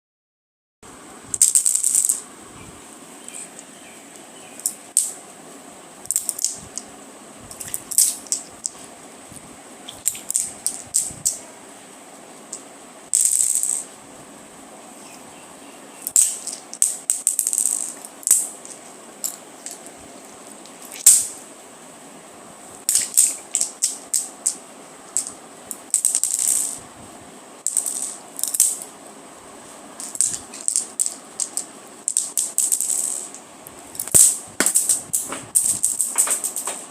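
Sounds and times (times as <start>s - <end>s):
small dry object rattling: 34.0s - 36.9s.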